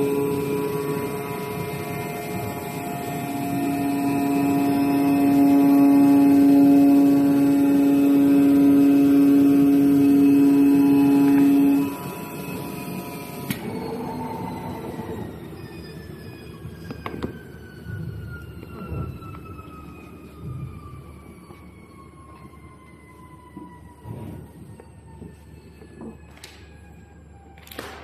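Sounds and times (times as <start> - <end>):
strong held machine tone: 0.0 - 20.2
machine hum: 0.0 - 23.2.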